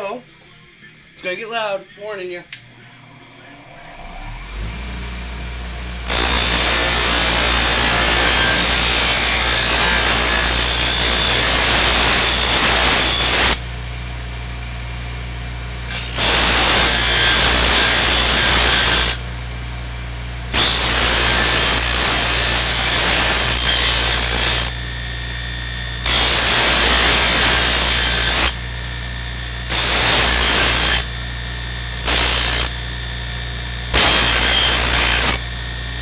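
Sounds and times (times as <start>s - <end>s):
motor-driven wire wheel spinning: 6.1s - 13.6s, 20.6s - 32.8s.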